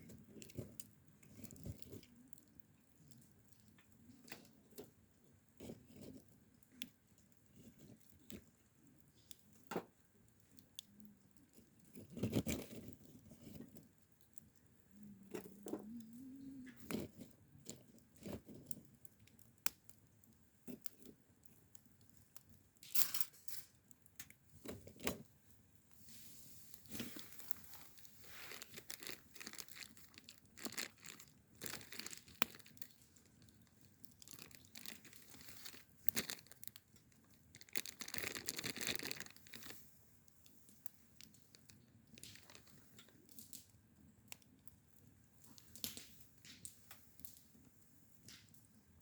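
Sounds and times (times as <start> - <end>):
crinkling and tearing: 0.0 - 4.9, 10.4 - 23.1, 24.2 - 25.3, 26.0 - 43.7.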